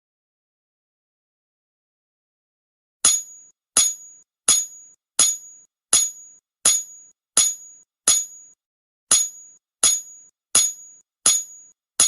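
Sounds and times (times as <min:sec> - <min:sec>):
sharp metallic clinks: 0:03.0 - 0:11.8.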